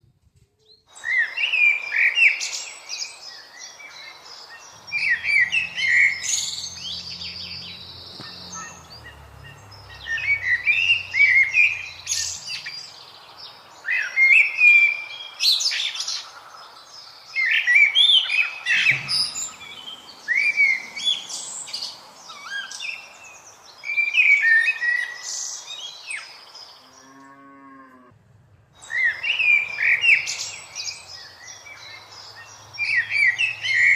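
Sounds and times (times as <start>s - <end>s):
birds chirping: 0.6s - 28.1s, 28.7s - 33.9s
cow mooing: 26.9s - 28.1s.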